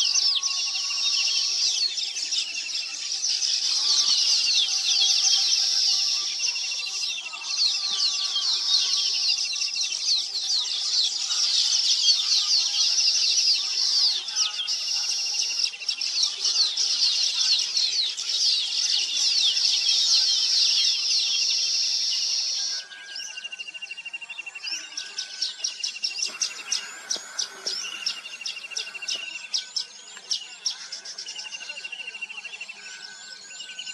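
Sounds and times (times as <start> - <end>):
small birds chirping and twittering: 0.0 - 33.9.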